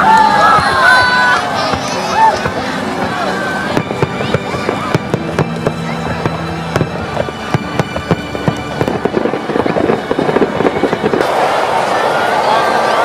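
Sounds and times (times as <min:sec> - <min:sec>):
fireworks bangs and crackling: 0:00.1 - 0:12.0
steady low tone: 0:02.5 - 0:11.2.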